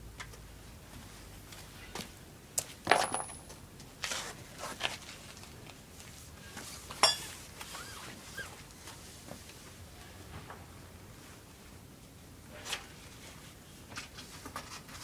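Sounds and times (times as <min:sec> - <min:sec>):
metal tools clinking: 0:02.9 - 0:03.6.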